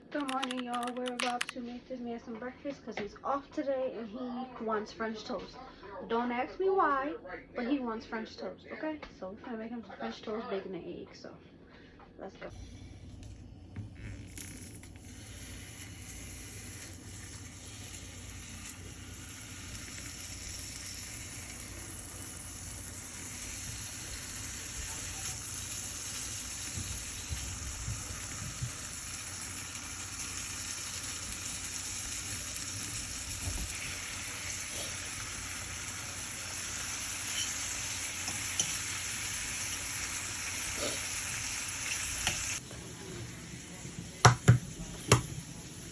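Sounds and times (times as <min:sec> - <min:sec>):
small pops and clicks: 0:00.1 - 0:01.6
food sizzling in frying pan: 0:13.9 - 0:45.9.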